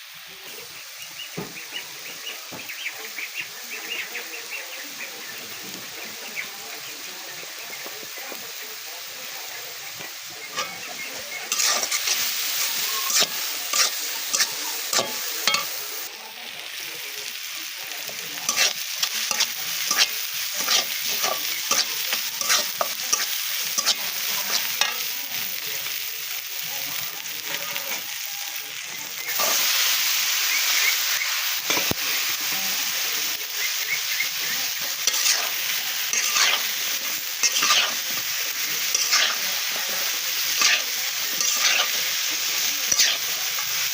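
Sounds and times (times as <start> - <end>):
food sizzling in oil: 0.0 - 43.9
spatula scraping a pan: 10.4 - 15.7, 18.4 - 25.1, 34.3 - 43.9.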